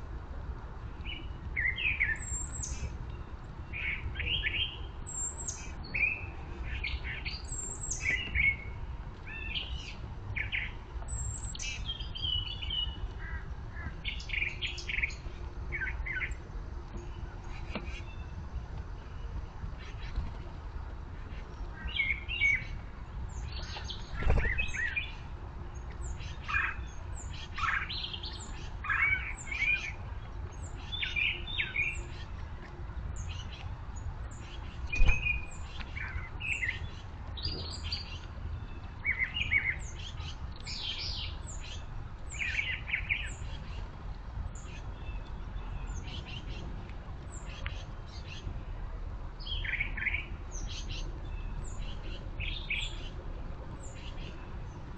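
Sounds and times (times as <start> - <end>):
small birds chirping: 0.8 - 48.6, 49.3 - 54.9.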